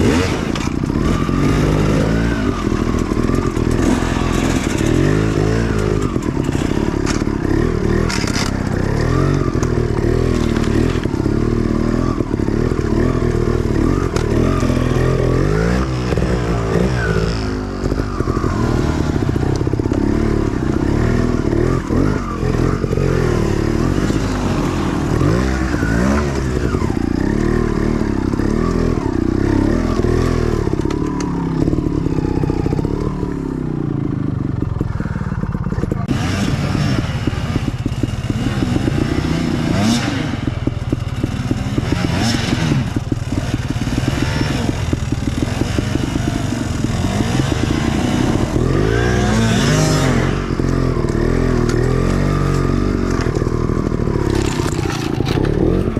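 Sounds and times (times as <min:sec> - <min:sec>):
dirt bike engine revving: 0:00.0 - 0:55.9
bike clattering over rough ground: 0:02.6 - 0:11.3, 0:50.6 - 0:55.9.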